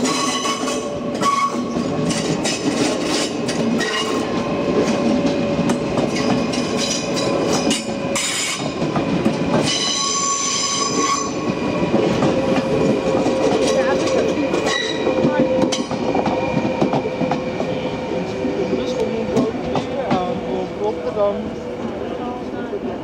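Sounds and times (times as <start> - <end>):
train high squeal: 0.0 - 5.0, 6.1 - 8.8, 9.6 - 11.6, 13.6 - 18.3
train wheels clicking over rail joints: 0.0 - 20.6.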